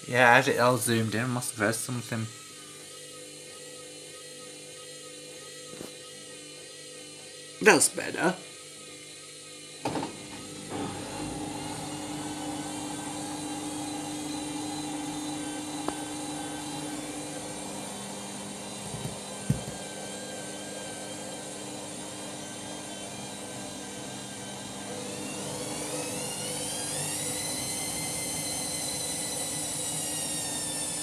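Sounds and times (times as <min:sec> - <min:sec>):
washing machine motor whir: 0:00.0 - 0:31.0
washing machine knocks: 0:18.9 - 0:19.8.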